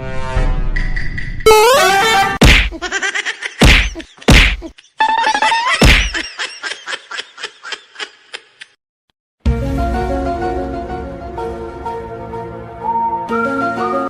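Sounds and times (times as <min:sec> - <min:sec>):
music: 0:00.0 - 0:02.4, 0:09.4 - 0:14.0
loud comedy whacks: 0:02.4 - 0:02.9, 0:03.6 - 0:04.7, 0:05.8 - 0:06.2.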